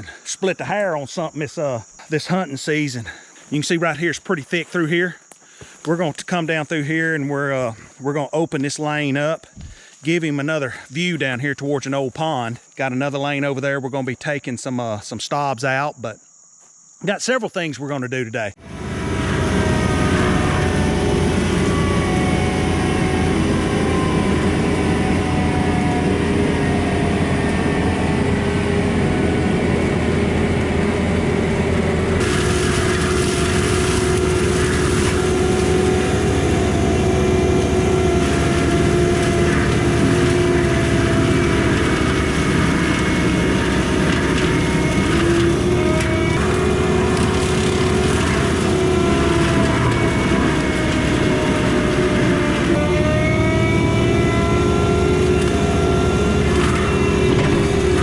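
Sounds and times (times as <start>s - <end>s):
diesel engine running under load: 18.6s - 58.0s
hydraulic mulcher whine: 18.6s - 58.0s.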